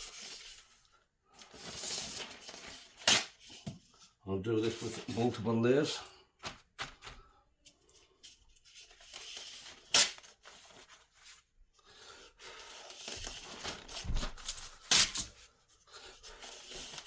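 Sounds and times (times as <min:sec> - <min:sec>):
paper towel rustling: 0:12.5 - 0:14.8.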